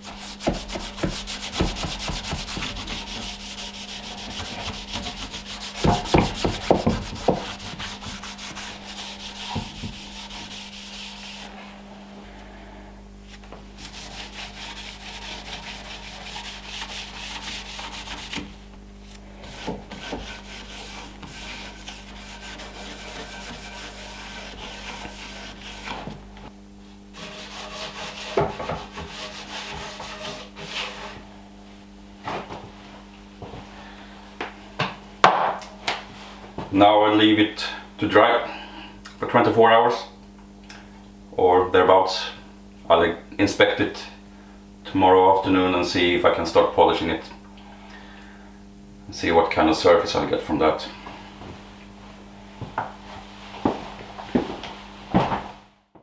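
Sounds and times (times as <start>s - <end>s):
cloth rubbing wax on wood: 0.0s - 11.8s, 13.3s - 18.6s, 19.4s - 26.2s, 27.1s - 31.3s
knocks on wood: 0.4s - 2.9s, 4.3s - 7.9s.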